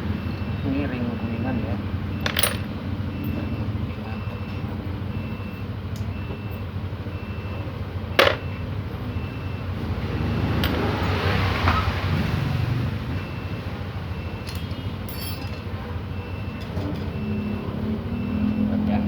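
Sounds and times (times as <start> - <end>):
sharp metallic clinks: 14.4 - 15.6.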